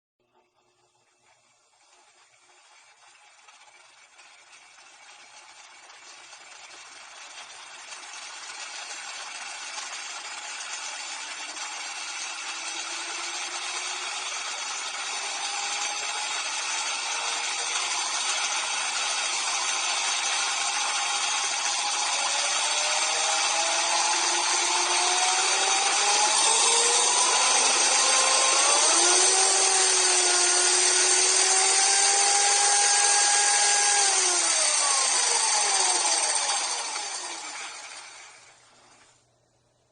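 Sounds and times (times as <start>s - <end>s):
model engine whirring: 1.1s - 39.2s.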